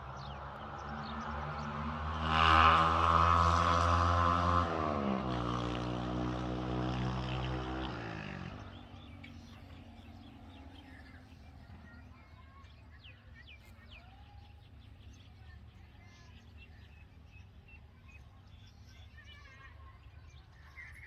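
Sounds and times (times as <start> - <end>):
birds chirping: 6.4 - 21.0.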